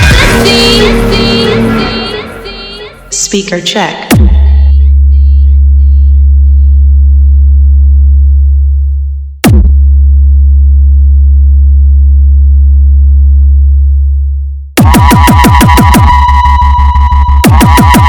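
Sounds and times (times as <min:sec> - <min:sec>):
fast downward bass sweep: 0:00.0 - 0:04.8
deep sub-bass tone: 0:00.0 - 0:18.0.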